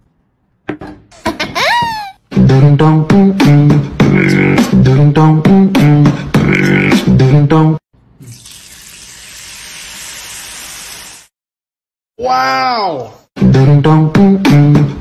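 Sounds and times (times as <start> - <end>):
music with beat and vocals: 2.3 - 7.8, 13.4 - 15.0.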